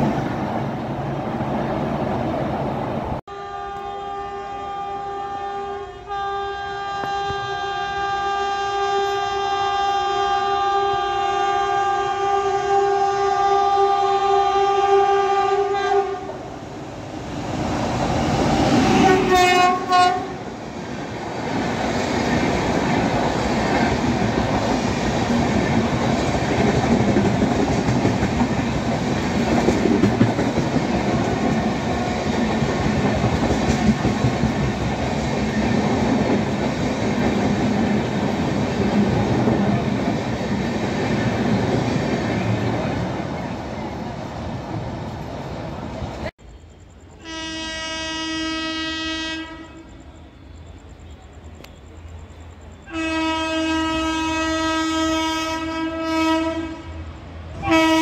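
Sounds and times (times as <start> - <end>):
locomotive horn blasts: 3.3 - 16.4, 18.8 - 20.4, 47.2 - 50.0, 52.9 - 58.0
train wheels clattering: 21.0 - 43.6.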